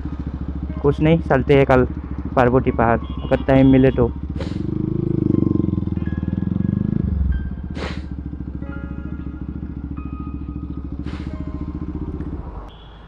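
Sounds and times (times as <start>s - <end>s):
motorcycle engine pulsing: 0.0s - 12.8s
brief hissing rushes: 4.4s - 4.7s, 7.8s - 8.1s, 11.1s - 11.4s.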